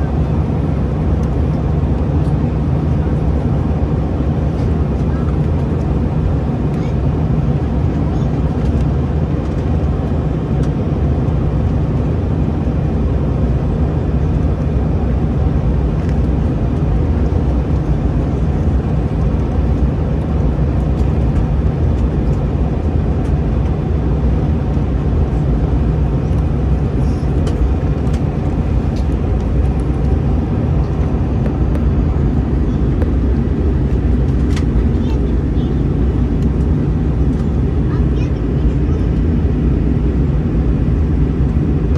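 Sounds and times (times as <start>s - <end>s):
jet engines running: 0.0s - 41.9s
cabin air system hissing: 25.4s - 34.4s.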